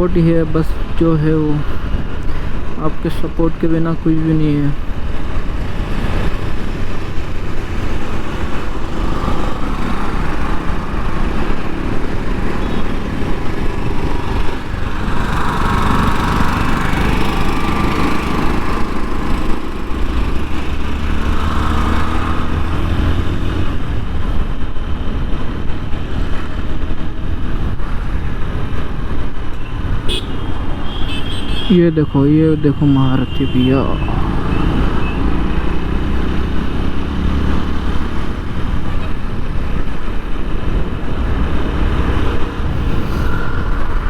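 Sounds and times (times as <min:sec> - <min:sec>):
person speaking: 0:00.0 - 0:01.8, 0:02.8 - 0:04.8, 0:31.7 - 0:34.9
road and wind noise: 0:00.0 - 0:44.0
motorcycle engine running: 0:08.2 - 0:20.9.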